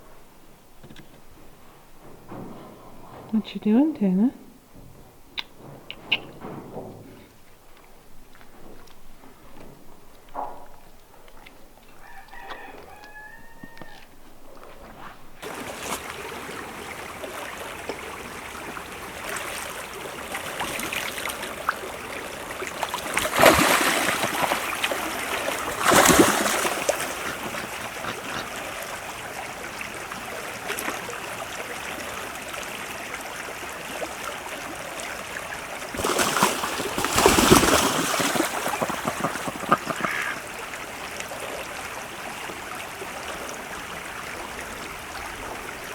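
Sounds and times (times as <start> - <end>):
rooster crowing: 12.0 - 14.2.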